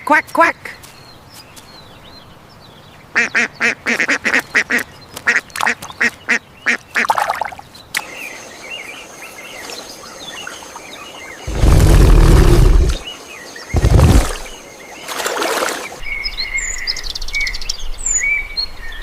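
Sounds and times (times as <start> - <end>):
faint bird chirping: 0.6 - 19.0.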